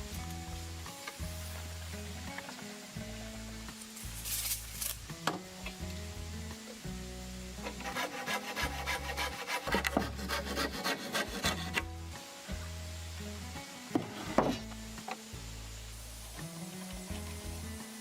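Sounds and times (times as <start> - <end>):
hand tool scraping wood: 7.6 - 11.9.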